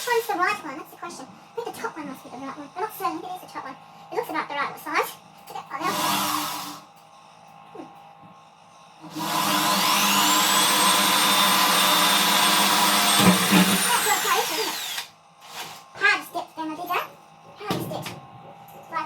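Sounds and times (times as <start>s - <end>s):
electric drill whining: 5.9s - 6.8s, 9.1s - 15.8s.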